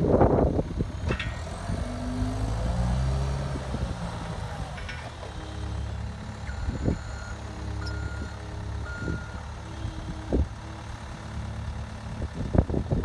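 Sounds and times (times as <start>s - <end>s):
diesel engine running: 0.0s - 13.0s
back-up alarm beeping: 6.5s - 9.4s.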